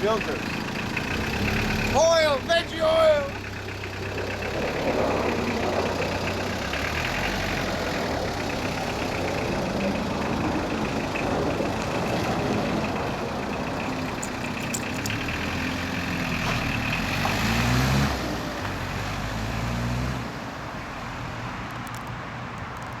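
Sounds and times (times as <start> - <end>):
diesel engine running: 0.0 - 20.6.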